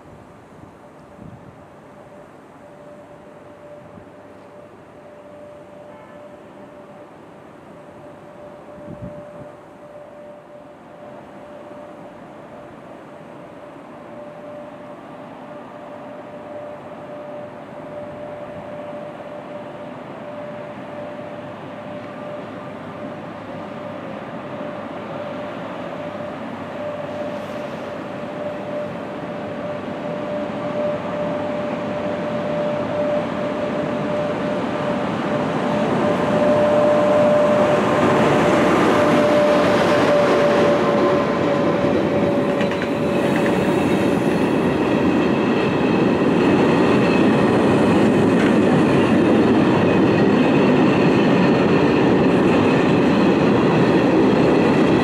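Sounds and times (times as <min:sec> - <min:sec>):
train rumbling past: 0:00.0 - 0:55.0
steady whine: 0:02.0 - 0:55.0
wheels squealing: 0:35.3 - 0:55.0.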